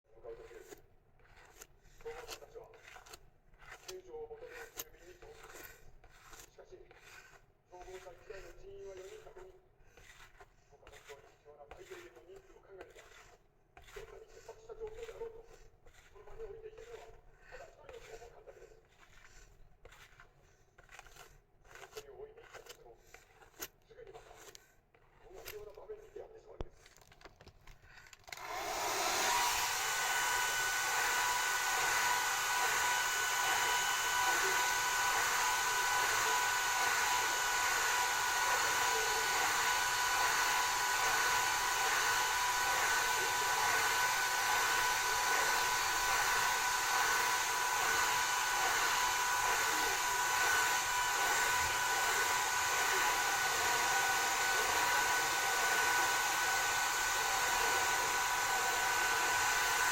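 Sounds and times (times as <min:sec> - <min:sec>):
hair dryer running: 0:28.2 - 0:59.9.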